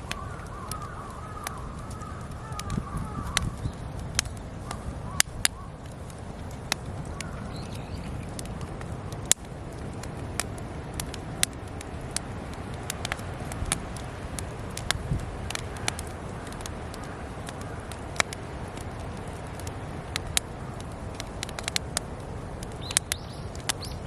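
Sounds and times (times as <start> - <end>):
campfire crackling and popping: 0.0 - 24.0
faint bird chirps: 7.2 - 8.4, 22.8 - 24.0.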